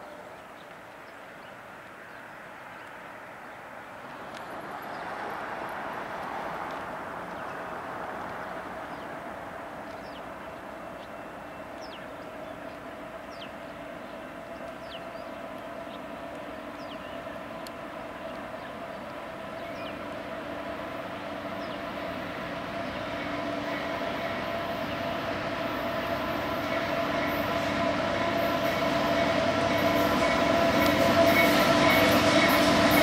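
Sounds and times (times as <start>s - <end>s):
diesel freight train approaching: 0.0s - 33.0s.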